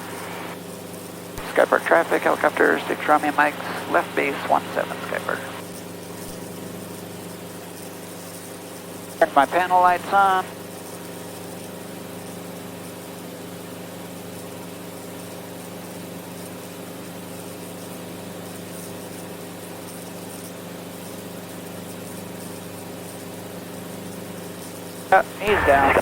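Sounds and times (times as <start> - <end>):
helicopter engine and rotor drone: 0.0 - 15.6, 22.8 - 26.0.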